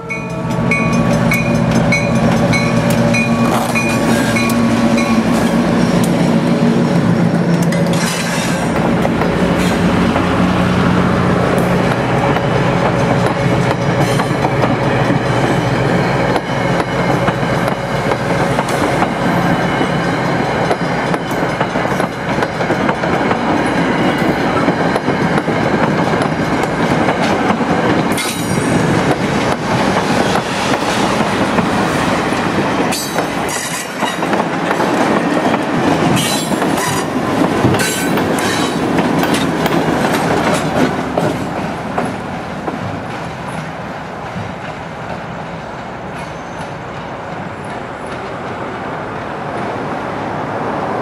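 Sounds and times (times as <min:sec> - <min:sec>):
diesel locomotive passing: 0:00.0 - 0:51.0
train wheels clattering over joints: 0:16.3 - 0:48.6.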